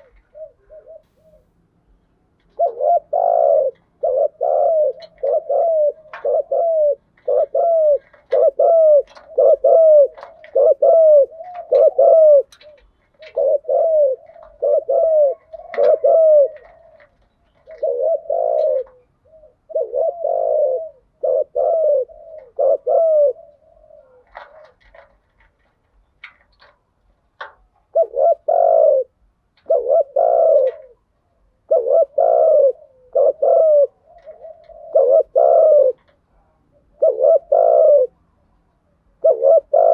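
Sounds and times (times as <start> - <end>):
doves cooing: 0.0 - 26.8, 27.4 - 39.9.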